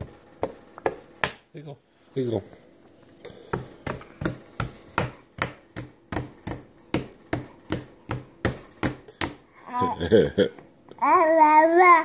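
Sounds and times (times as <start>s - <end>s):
rapid sharp knocking: 3.5s - 9.4s.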